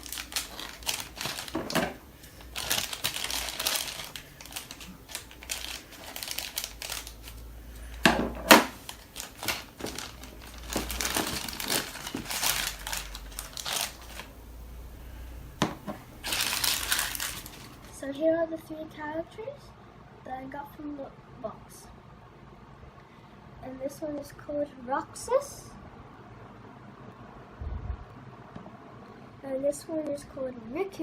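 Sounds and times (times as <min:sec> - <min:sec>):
cardboard and plastic crinkling: 0:00.0 - 0:18.0.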